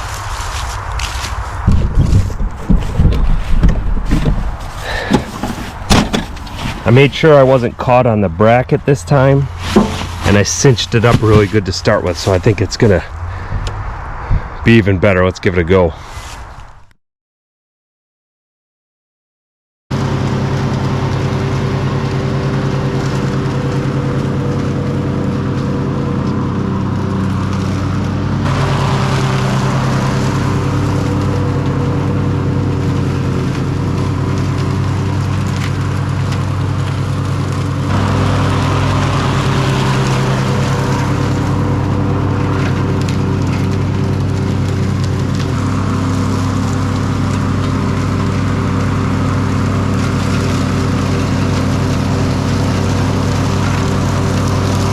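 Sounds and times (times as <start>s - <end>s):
lawn tractor running: 0.0s - 13.6s, 19.9s - 54.9s
debris ticking and rattling in chute: 27.0s - 54.9s.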